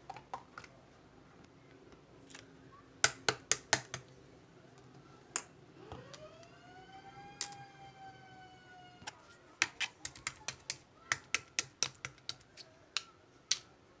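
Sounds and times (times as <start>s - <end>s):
rising pitched tone: 5.8s - 9.0s.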